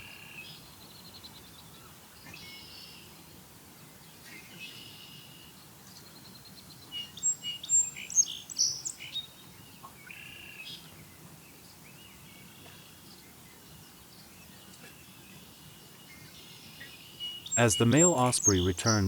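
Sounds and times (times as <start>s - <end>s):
birds chirping: 17.4s - 19.0s.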